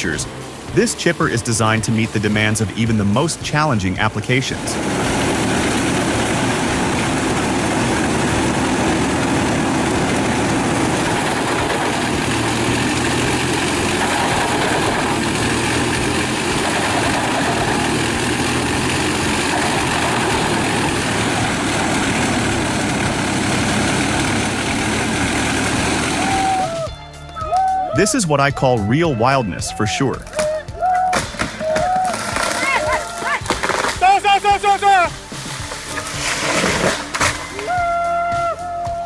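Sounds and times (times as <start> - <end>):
large engine droning: 0.0 - 27.9.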